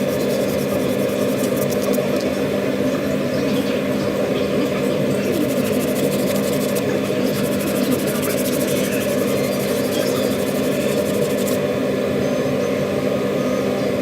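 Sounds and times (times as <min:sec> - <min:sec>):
motor humming: 0:00.0 - 0:02.3, 0:04.2 - 0:11.6.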